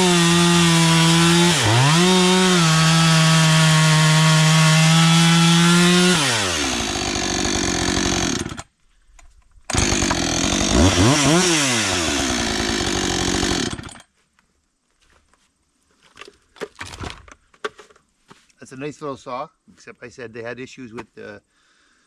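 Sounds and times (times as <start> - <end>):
chainsaw engine idling and revving: 0.0 - 8.7, 9.7 - 14.0.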